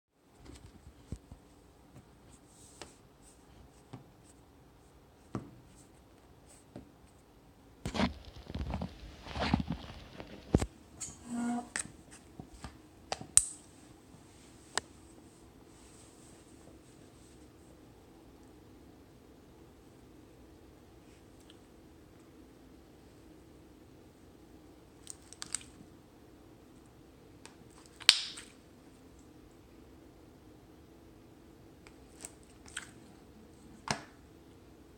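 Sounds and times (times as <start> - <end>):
slime popping and crackling: 25.0 - 25.8, 27.8 - 28.5.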